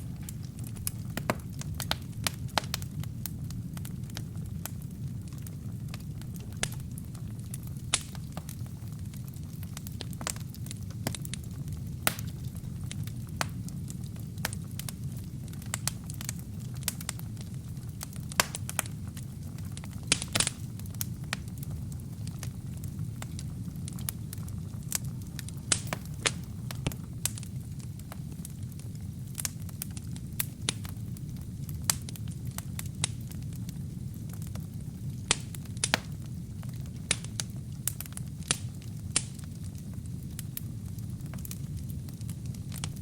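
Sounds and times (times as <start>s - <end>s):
burning logs crackling and popping: 0.0s - 43.0s
fire flames rumbling: 0.0s - 43.0s.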